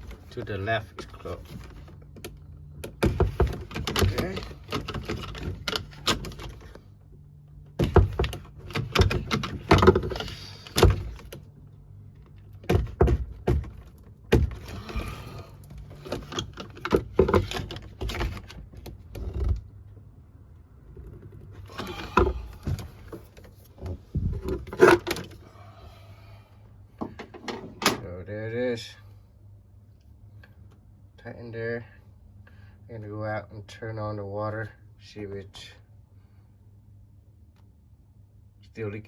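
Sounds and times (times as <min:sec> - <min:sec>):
knocks clunks and clicks of handling: 0:00.0 - 0:25.4, 0:26.9 - 0:28.1.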